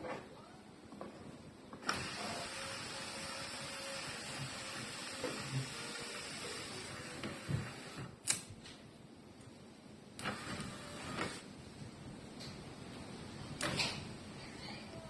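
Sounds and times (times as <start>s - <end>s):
small electric motor whirring: 1.8s - 8.1s
sharp clicks: 8.2s - 8.5s.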